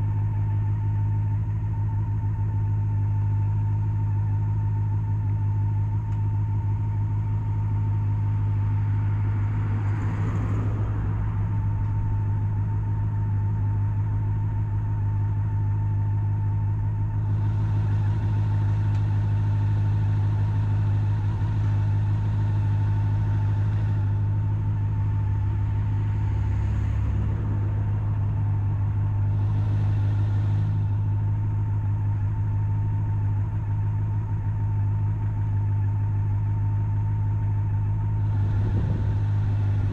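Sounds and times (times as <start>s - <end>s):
road and wind rush: 5.7s - 39.9s
motorcycle engine cruising: 37.4s - 39.9s.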